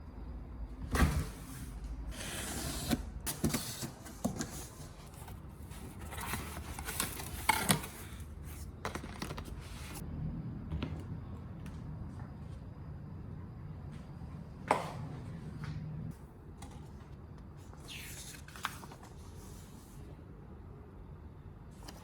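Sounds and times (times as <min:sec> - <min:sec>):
rustling of things handled: 0:03.8 - 0:10.0.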